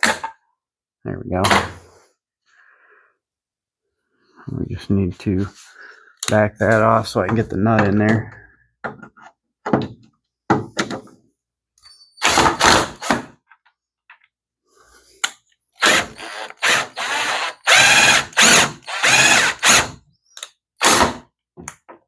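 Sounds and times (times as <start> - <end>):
power drill bursts: 12.2 - 13.1, 15.8 - 20.0, 20.8 - 21.2.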